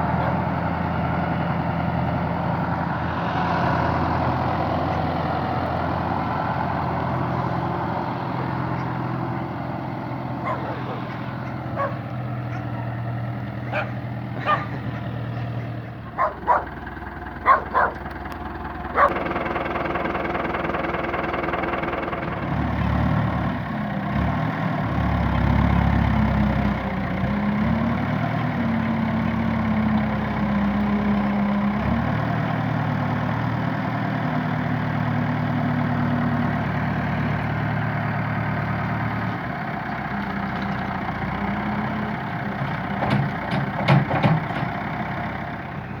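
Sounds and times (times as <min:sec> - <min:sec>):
tractor engine running: 0:00.0 - 0:46.0
dog barking: 0:10.4 - 0:12.7, 0:13.7 - 0:16.8, 0:17.4 - 0:18.0, 0:19.0 - 0:19.2.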